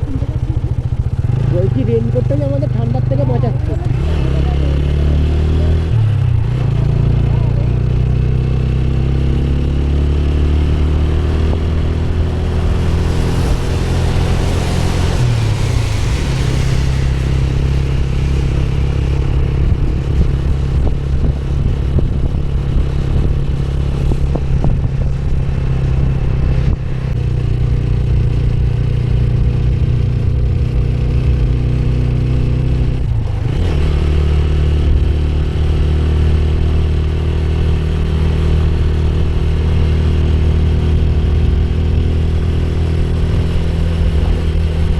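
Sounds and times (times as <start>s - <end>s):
motorcycle engine running: 0.0s - 44.9s
rushing hiss: 12.5s - 18.3s.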